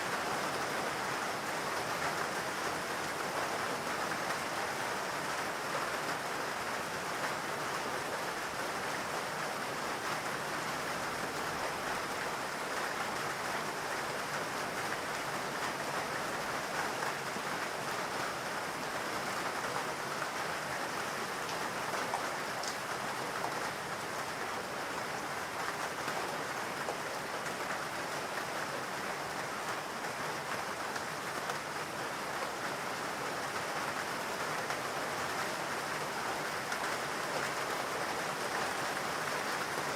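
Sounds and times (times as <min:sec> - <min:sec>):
rain on foliage and ground: 0:00.0 - 0:39.9.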